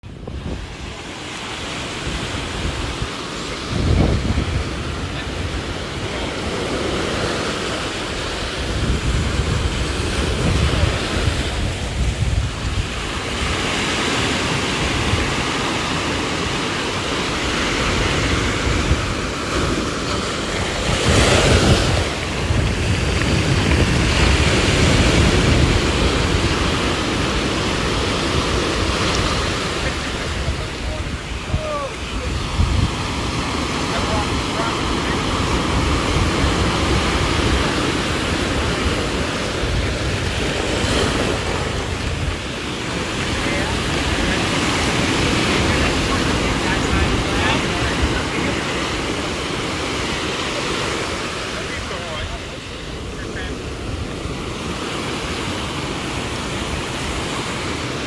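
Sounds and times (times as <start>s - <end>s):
surf washing on beach: 0.0s - 58.0s
wind gusting on microphone: 0.0s - 58.0s.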